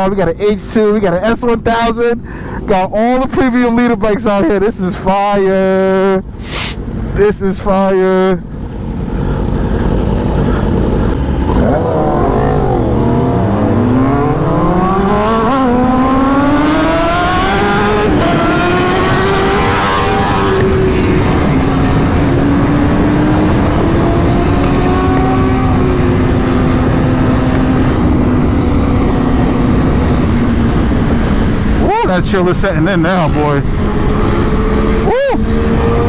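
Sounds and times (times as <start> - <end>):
motorcycle engine accelerating: 8.6 - 36.0
wind rush on microphone: 8.7 - 36.0.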